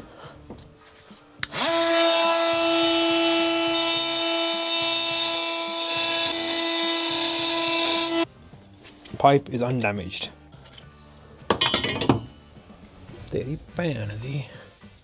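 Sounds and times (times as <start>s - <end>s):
oscillating multi-tool whining: 1.4s - 8.3s.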